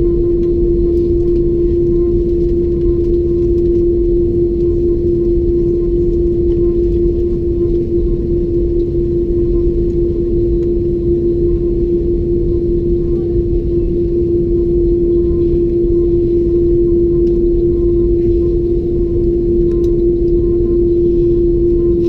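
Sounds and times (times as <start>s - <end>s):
jet engines rumbling in cabin: 0.0s - 22.0s
steady hum: 0.0s - 22.0s.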